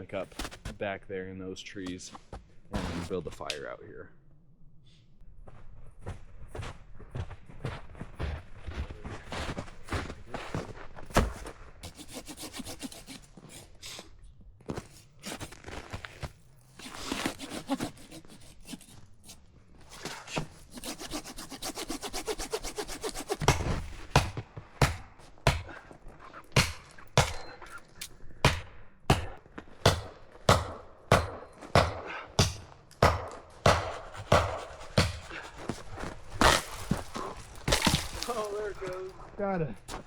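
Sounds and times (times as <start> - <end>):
hand saw cutting wood: 11.2 - 14.1, 14.8 - 39.1.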